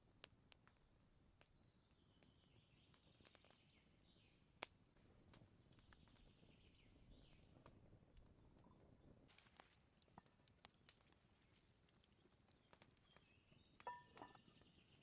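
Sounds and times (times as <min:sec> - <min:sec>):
faint forest ambience: 0:00.1 - 0:15.0
small clicks and taps: 0:09.4 - 0:14.6.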